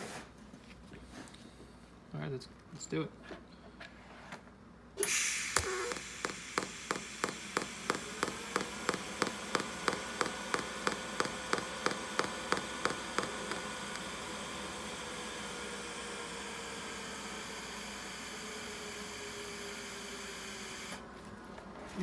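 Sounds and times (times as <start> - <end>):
steady electrical hum: 0.0 - 22.0
welding arc buzzing with ticks: 5.1 - 14.9
welding arc crackling: 5.4 - 15.3.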